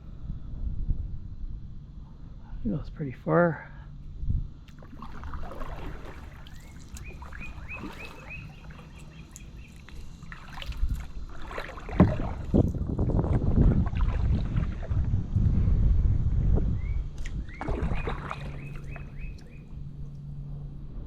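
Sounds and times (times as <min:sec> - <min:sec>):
wind on microphone: 0:00.0 - 0:02.6, 0:04.0 - 0:21.0
paddle strokes in water: 0:04.7 - 0:15.2, 0:17.2 - 0:20.5
bird whistling short notes: 0:16.8 - 0:19.7.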